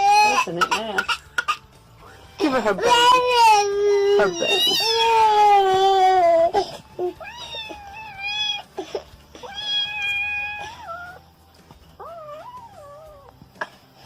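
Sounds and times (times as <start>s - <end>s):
cat meowing: 7.1s - 8.7s, 9.4s - 11.2s.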